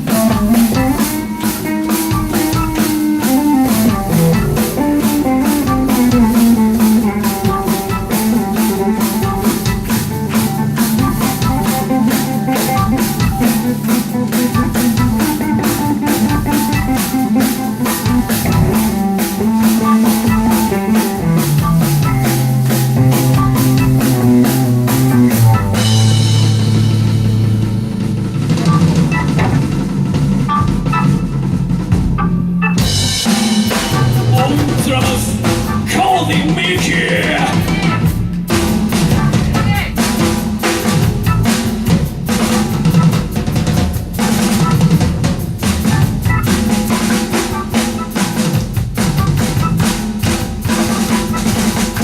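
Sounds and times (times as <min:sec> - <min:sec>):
cymbals washing: 0:00.0 - 0:28.8
drum kit beat: 0:00.0 - 0:52.0
electric guitar: 0:00.0 - 0:52.0.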